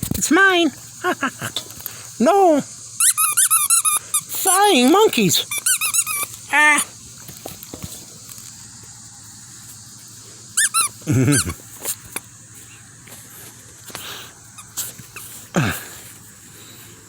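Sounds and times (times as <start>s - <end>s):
squeaky toy squeaking: 3.0s - 4.0s, 5.5s - 6.3s, 10.6s - 11.5s.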